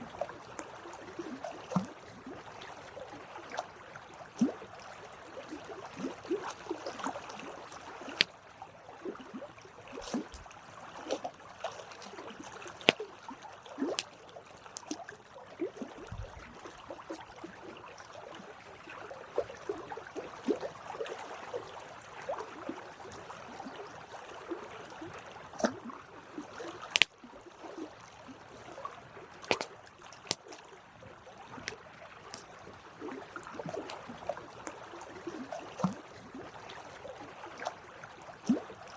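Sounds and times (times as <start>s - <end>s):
campfire crackling and popping: 8.1s - 8.3s, 26.9s - 27.1s
burning wood snapping: 26.9s - 27.1s.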